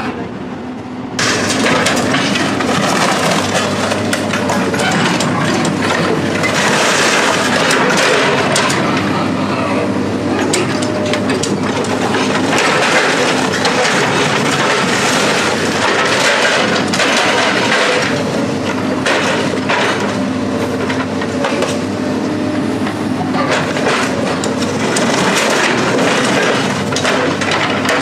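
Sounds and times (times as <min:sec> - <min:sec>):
heavy machine engine running: 0:00.0 - 0:28.0
scrap metal cracking and clanking: 0:01.2 - 0:09.7, 0:10.3 - 0:21.8, 0:23.4 - 0:28.0.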